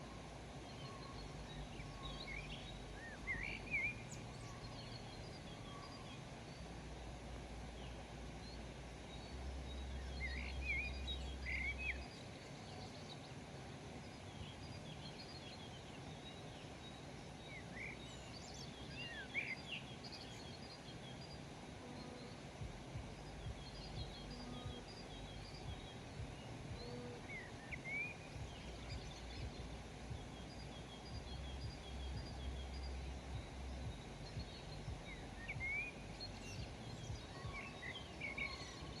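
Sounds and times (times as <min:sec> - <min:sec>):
outdoor hiss: 0:00.0 - 0:39.0
small birds chirping: 0:00.0 - 0:39.0
low rumble: 0:22.6 - 0:27.6, 0:28.2 - 0:37.6.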